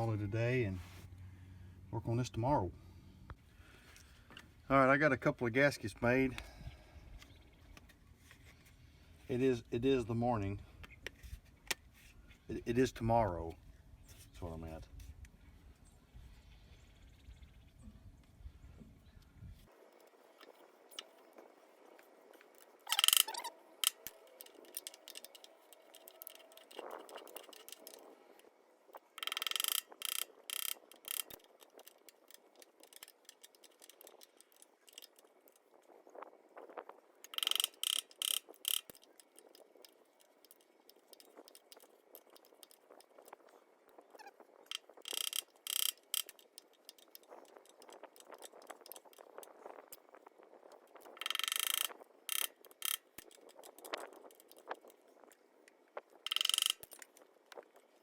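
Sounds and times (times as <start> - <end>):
ratchet wrench clicking: 22.9 - 28.1, 29.2 - 35.3, 37.3 - 43.1, 44.7 - 49.4, 51.0 - 54.7, 56.2 - 57.2.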